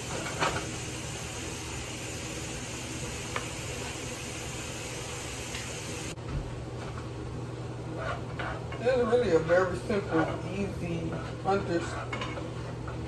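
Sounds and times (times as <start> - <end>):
meat and onions sizzling in pan: 0.0 - 6.2.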